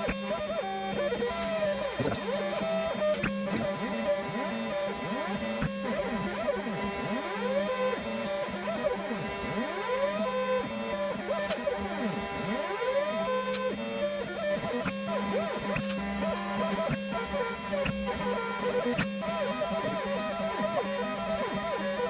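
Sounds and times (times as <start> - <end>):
spindle humming: 0.0 - 7.7
stepper motors whining: 0.0 - 8.0.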